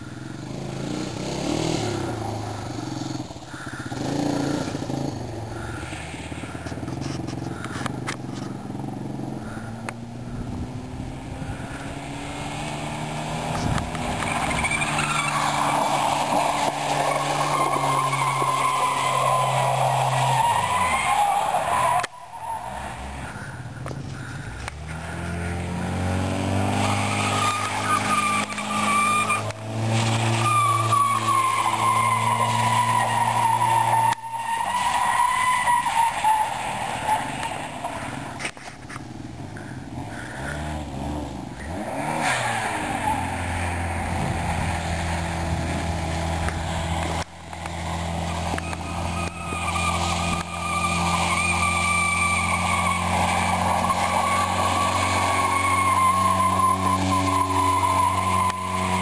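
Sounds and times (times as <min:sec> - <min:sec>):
car engine revving hard: 0:00.0 - 0:38.6, 0:39.2 - 0:59.0
tyres sliding on gravel: 0:01.2 - 0:09.9, 0:11.4 - 0:59.0.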